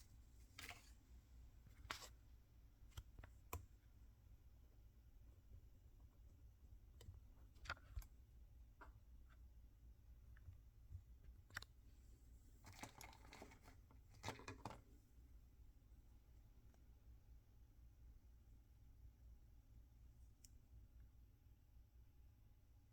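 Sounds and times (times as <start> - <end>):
small packaging clicks: 12.6 - 14.9.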